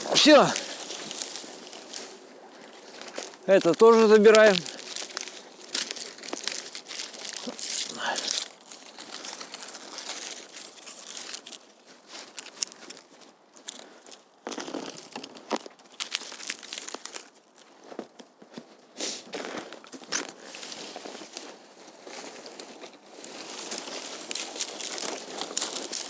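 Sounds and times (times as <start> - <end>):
twigs snapping: 0.0 - 13.0, 13.6 - 17.4, 22.3 - 26.0
snow and wood crunching: 0.0 - 26.0.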